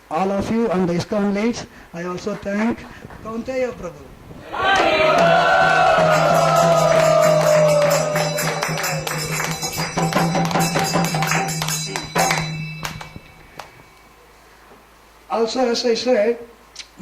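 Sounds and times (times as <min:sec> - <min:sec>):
group call: 0:04.4 - 0:09.5
rhythmic clapping: 0:04.7 - 0:13.8
bright jingling: 0:06.2 - 0:14.2.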